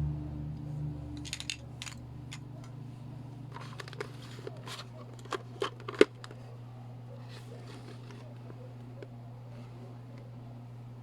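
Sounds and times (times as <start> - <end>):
steady low hum: 0.0 - 11.0
plastic toy pieces clicking: 1.2 - 2.0.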